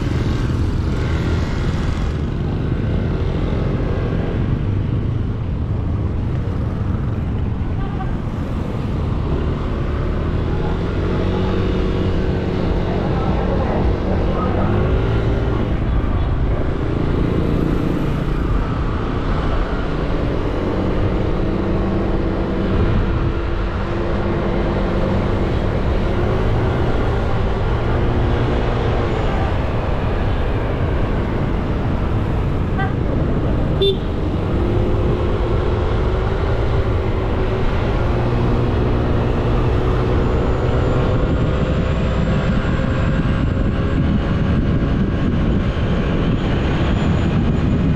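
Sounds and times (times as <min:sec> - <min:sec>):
road and wind noise: 0:00.0 - 0:47.9.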